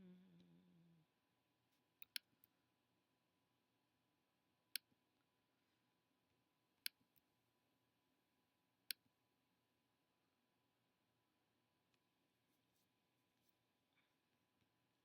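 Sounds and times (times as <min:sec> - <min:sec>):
person humming: 0:00.0 - 0:01.1
computer mouse clicking: 0:02.0 - 0:02.3.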